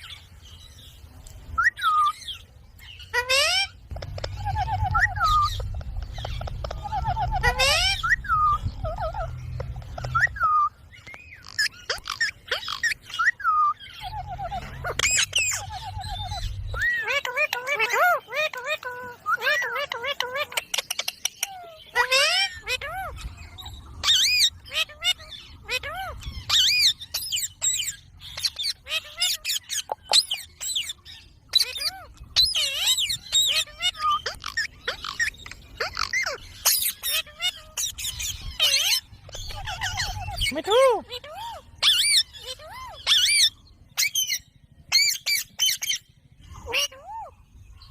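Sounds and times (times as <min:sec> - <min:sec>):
parakeet chirping and squawking: 0:01.6 - 0:47.9
low rumble: 0:03.7 - 0:11.0, 0:14.0 - 0:17.0.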